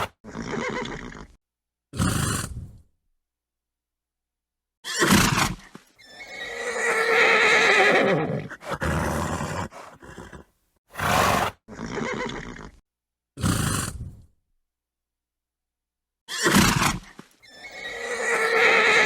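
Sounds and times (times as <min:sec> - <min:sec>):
horse snorting: 0:00.0 - 0:01.4, 0:02.0 - 0:02.8, 0:07.8 - 0:12.8, 0:13.4 - 0:14.2
horse whinnying: 0:00.0 - 0:01.4, 0:04.8 - 0:12.8, 0:16.3 - 0:19.0.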